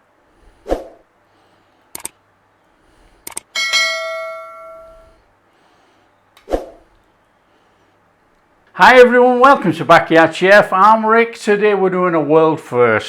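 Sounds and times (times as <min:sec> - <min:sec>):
sharp clicks: 0:01.9 - 0:02.2, 0:03.2 - 0:03.5
metallic bell ding: 0:03.5 - 0:05.2.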